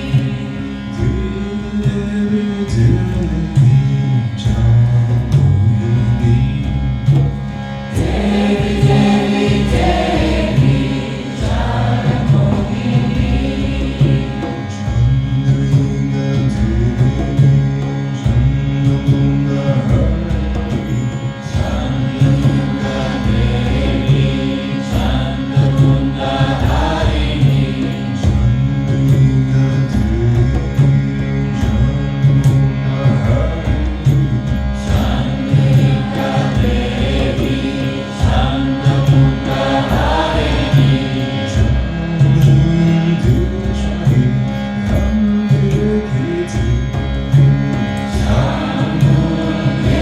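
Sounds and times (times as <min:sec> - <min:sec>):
light percussion: 0:00.0 - 0:50.0
steady drone: 0:00.0 - 0:50.0
voices chanting: 0:07.9 - 0:14.6, 0:21.6 - 0:28.5, 0:34.9 - 0:41.9, 0:48.2 - 0:50.0.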